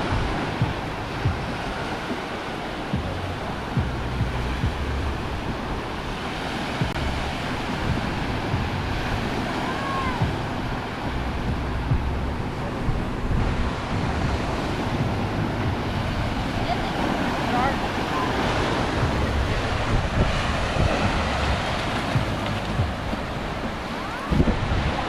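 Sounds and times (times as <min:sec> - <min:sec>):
ocean surf breaking on beach: 0:00.0 - 0:25.0
wind buffeting microphone: 0:00.0 - 0:25.0.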